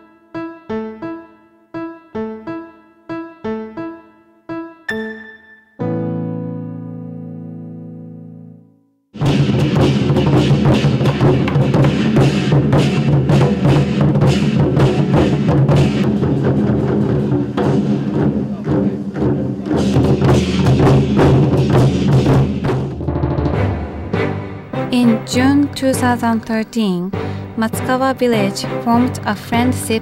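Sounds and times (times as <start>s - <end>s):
background music with drums: 9.2s - 30.0s.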